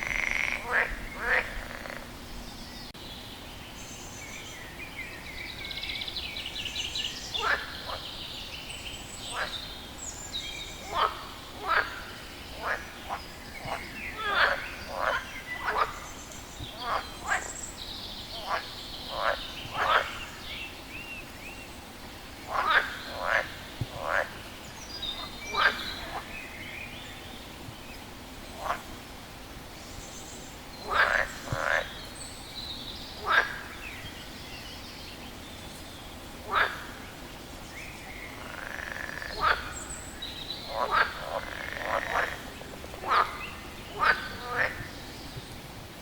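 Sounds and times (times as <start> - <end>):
frog croaking: 0.0 - 2.1, 7.4 - 8.1, 10.8 - 16.0, 16.7 - 17.6, 18.3 - 20.4, 22.5 - 24.4, 25.2 - 26.3, 30.8 - 32.0, 33.2 - 33.7, 36.5 - 37.0, 38.4 - 39.8, 40.6 - 44.9.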